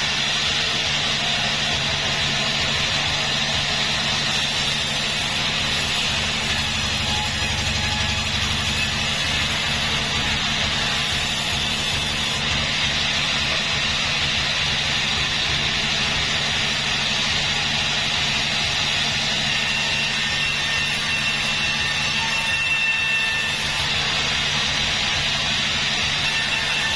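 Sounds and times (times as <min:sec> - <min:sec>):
high machinery hiss: 0:00.0 - 0:26.9
low engine drone: 0:12.3 - 0:19.4.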